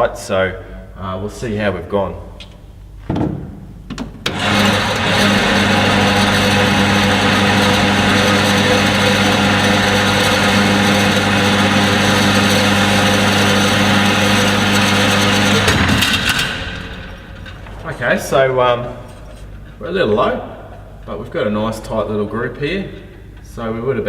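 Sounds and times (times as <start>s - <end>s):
electric motor humming: 4.3s - 17.6s.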